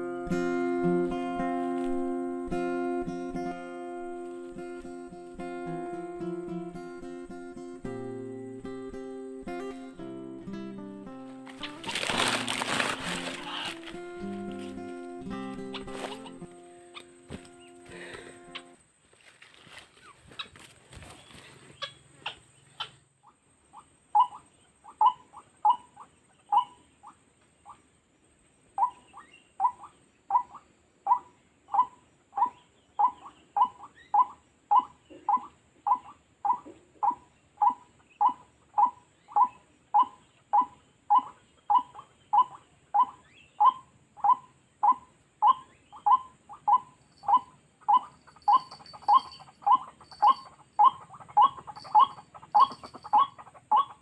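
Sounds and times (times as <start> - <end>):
faint rustling: 11.2 - 18.4
waterhen calling harsh notes: 11.5 - 17.1, 45.5 - 54.0.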